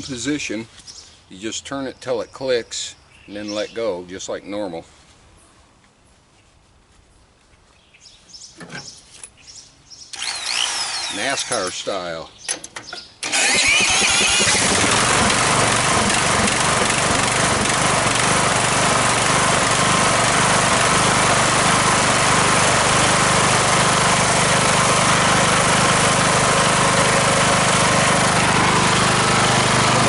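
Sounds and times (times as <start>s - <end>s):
lawn tractor engine running: 10.2s - 30.0s.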